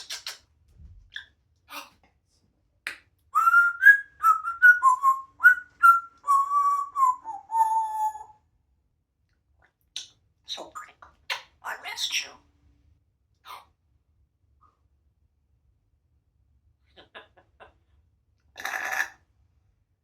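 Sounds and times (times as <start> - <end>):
parrot whistling a tune: 3.4 - 8.4.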